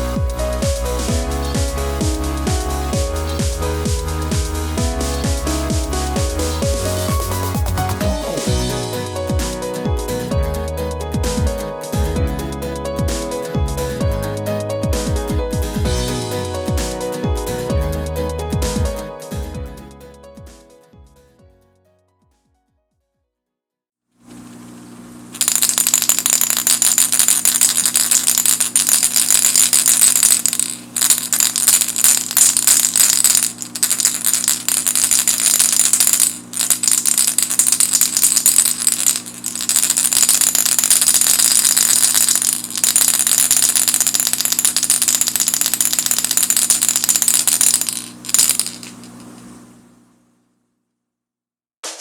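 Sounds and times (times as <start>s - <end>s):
fishing lure rattling: 25.4s - 49.3s.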